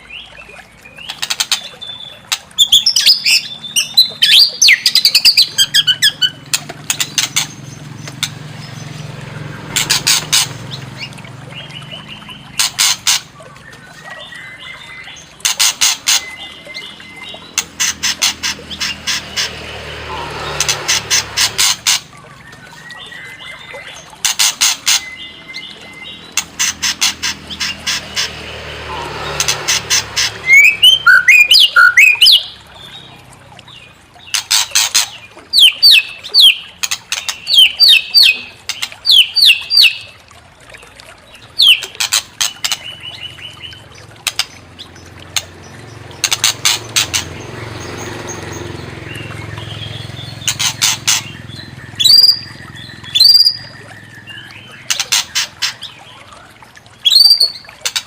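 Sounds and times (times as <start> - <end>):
whistled bird song: 0.0 - 6.4, 13.4 - 15.4, 16.1 - 17.6, 22.3 - 24.1, 24.9 - 26.4, 30.4 - 33.2, 35.6 - 40.2, 41.4 - 42.0, 49.0 - 56.4, 57.0 - 57.7
bird harsh rasping chatter: 17.6 - 22.0, 26.4 - 32.5, 50.2 - 51.4.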